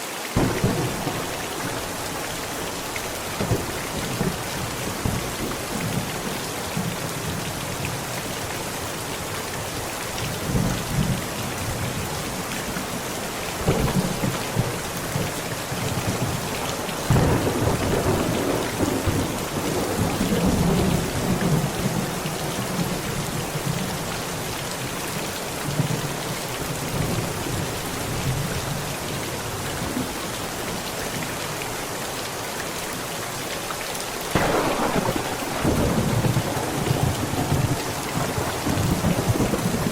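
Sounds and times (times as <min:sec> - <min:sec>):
heavy rain on a tent: 0:00.0 - 0:39.9
thunder rumbling: 0:00.4 - 0:07.4, 0:13.6 - 0:23.0, 0:34.3 - 0:39.9.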